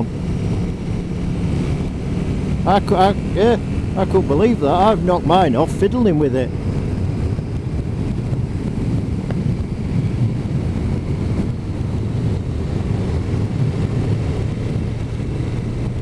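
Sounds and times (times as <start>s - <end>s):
motorcycle engine: 0.0s - 16.0s
wind on microphone: 0.0s - 16.0s.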